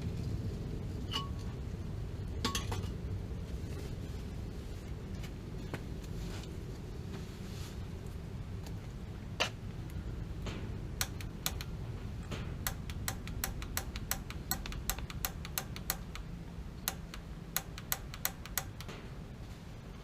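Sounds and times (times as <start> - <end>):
steady low rumble: 0.0 - 20.0
pilot igniter clicking: 10.9 - 19.0.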